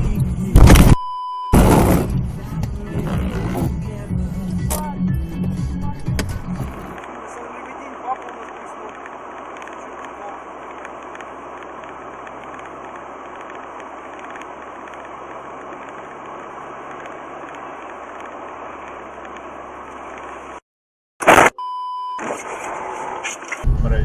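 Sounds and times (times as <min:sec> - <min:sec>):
car road and engine noise: 0:00.0 - 0:20.6, 0:22.1 - 0:24.0
brief loud burst: 0:00.6 - 0:02.1, 0:21.2 - 0:21.6.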